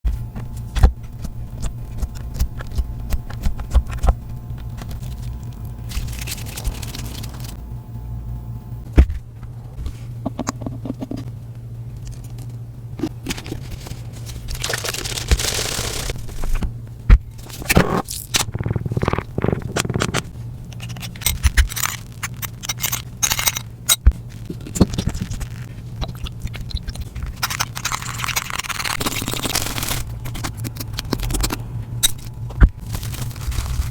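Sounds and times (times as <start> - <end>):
slime scraping and crackling: 13.3 - 16.5, 17.4 - 23.6, 24.2 - 31.6, 32.7 - 33.9.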